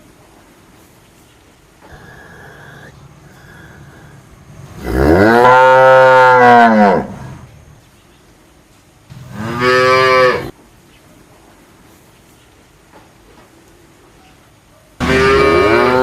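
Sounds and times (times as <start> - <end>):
cow mooing: 4.7 - 7.3, 9.2 - 10.5, 15.0 - 16.0.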